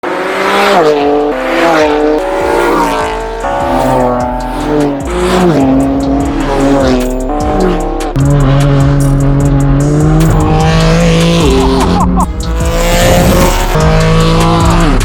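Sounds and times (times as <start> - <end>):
loud car engine revving: 0.0 - 15.0.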